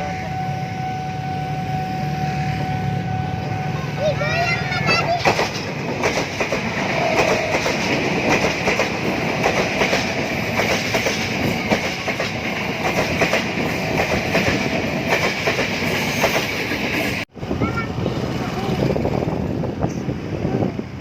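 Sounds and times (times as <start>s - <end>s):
train wheels clattering on rails: 4.7s - 17.3s.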